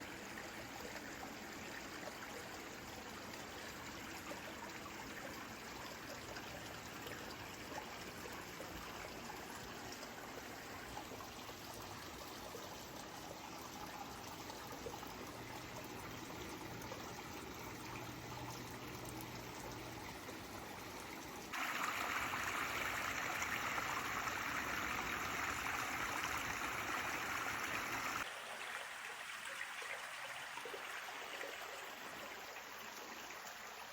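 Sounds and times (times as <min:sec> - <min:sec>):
water cascading and splashing: 0:21.5 - 0:28.9.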